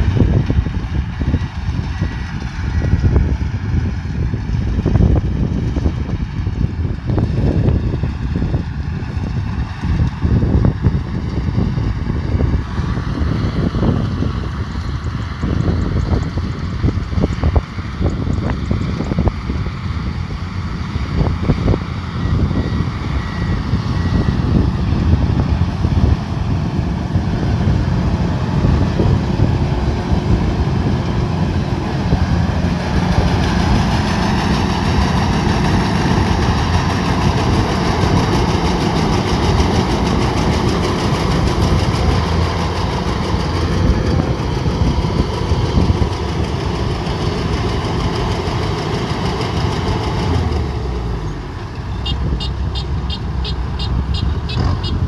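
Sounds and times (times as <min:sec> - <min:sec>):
harvester engine rumbling: 0:00.0 - 0:55.0.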